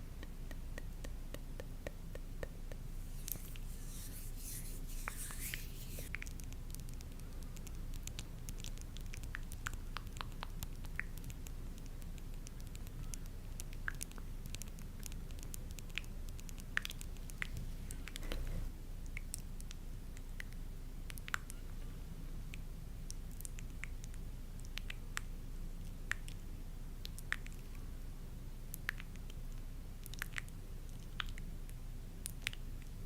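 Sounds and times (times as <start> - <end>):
soft rustle: 2.8 - 6.1.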